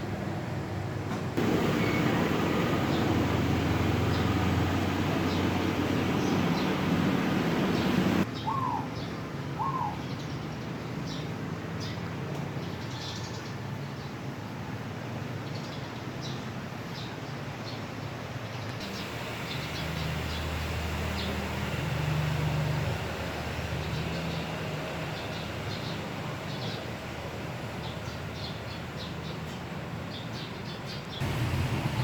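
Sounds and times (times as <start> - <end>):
steady noisy background: 0.0 - 32.0
small birds chirping: 1.4 - 14.1, 18.5 - 21.8.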